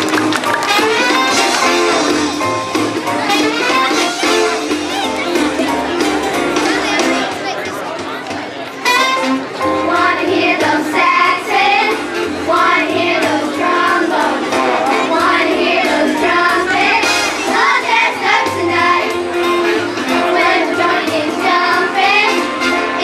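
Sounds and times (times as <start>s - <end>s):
instrumental accompaniment: 0.0s - 23.0s
children's choir singing: 9.6s - 23.0s.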